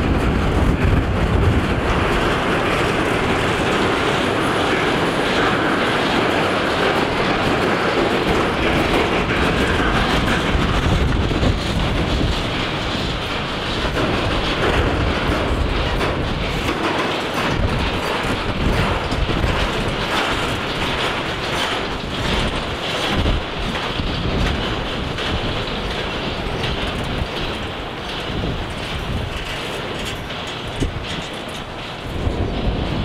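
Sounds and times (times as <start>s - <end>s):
train wheels rumbling on rails: 0.0s - 33.0s
wheels clacking over rail joints: 0.0s - 33.0s.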